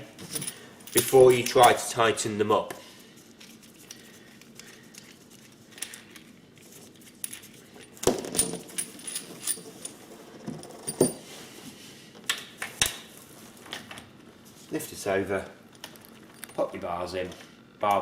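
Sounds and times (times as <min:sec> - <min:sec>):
metal parts clinking: 0:07.1 - 0:10.0.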